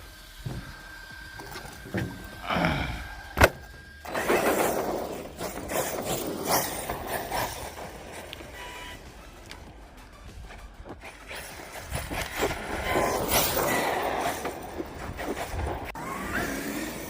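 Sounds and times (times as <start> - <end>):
electric motor whining: 0.0 - 17.0
tyres rolling on concrete: 0.0 - 17.0.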